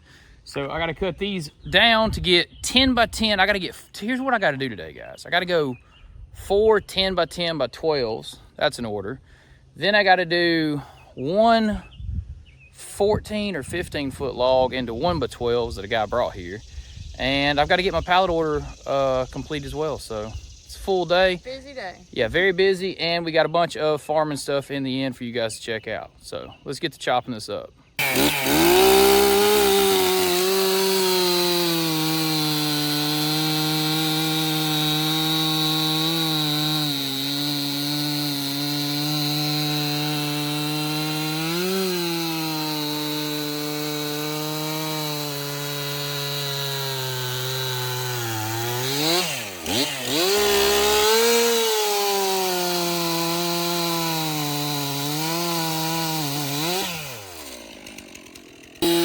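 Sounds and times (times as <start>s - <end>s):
chainsaw cutting log: 28.0s - 59.0s.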